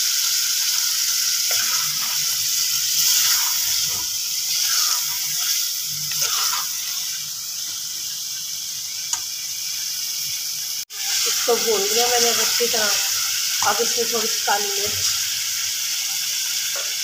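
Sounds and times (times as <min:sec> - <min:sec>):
food sizzling in oil: 0:00.0 - 0:17.0
metal ladle scraping a pot: 0:01.5 - 0:02.4, 0:06.1 - 0:07.0.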